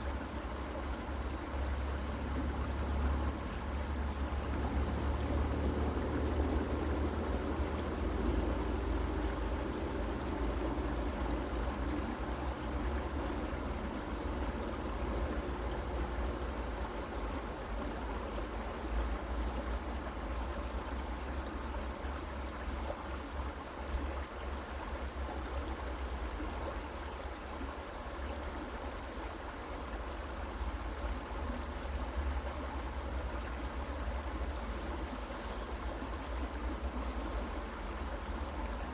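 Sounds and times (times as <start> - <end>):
creek water running: 0.0 - 38.9.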